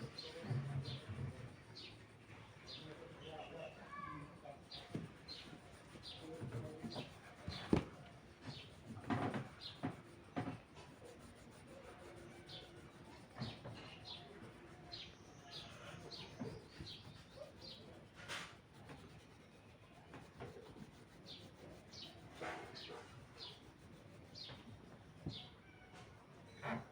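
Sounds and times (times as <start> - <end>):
small birds chirping: 0.0 - 26.6
handling knocks and rustles: 6.9 - 10.6.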